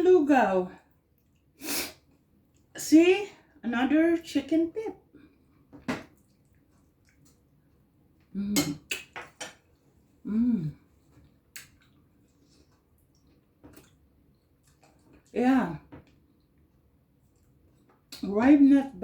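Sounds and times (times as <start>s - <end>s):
person humming murmurs: 10.3s - 10.8s.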